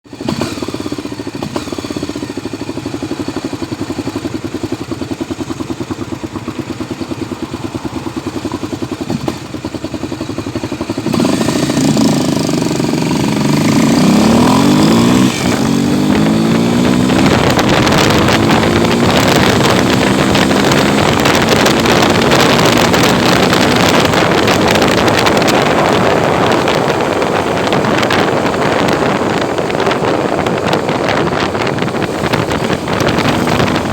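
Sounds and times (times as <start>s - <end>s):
motorcycle engine idling and revving: 0.0s - 33.9s
rushing noise: 11.0s - 33.9s.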